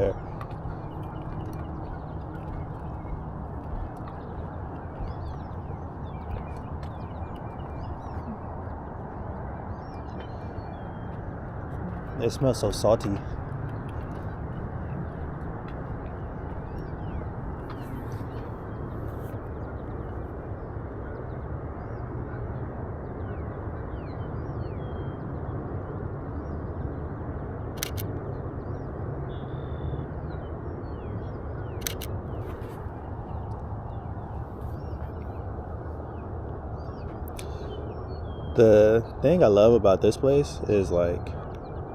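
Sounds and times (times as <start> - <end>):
low outdoor rush: 0.0 - 41.9
camera shutter clicking: 27.8 - 28.1, 31.8 - 32.1.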